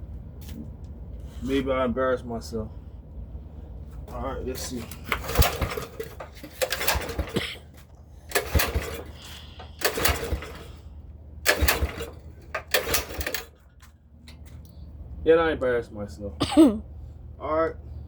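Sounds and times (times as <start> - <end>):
recoil starter rope yanked: 4.8 - 7.5, 8.3 - 10.8
small engine turning over: 5.0 - 7.5, 8.3 - 13.6.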